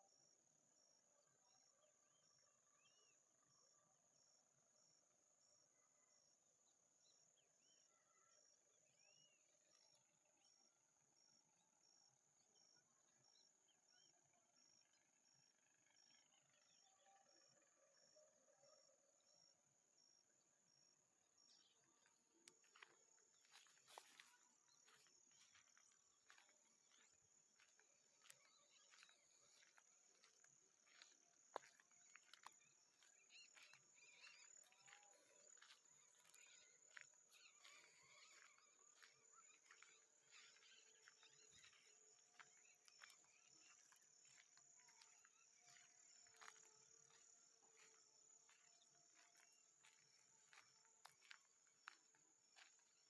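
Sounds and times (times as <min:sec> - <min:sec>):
faint animal calls: 0:21.5 - 0:52.0.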